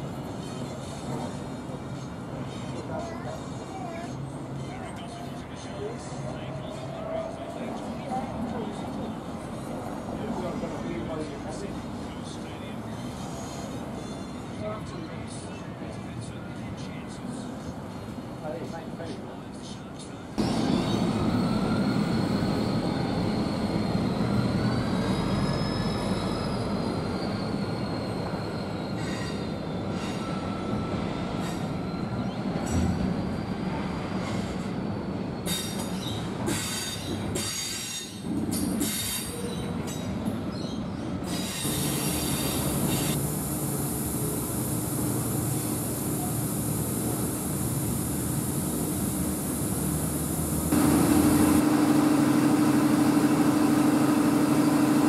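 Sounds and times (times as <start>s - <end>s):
freight train rumble: 0.0s - 55.0s
passenger train hum with hiss: 0.0s - 55.0s
train wheels squealing: 12.9s - 15.2s, 20.4s - 43.2s.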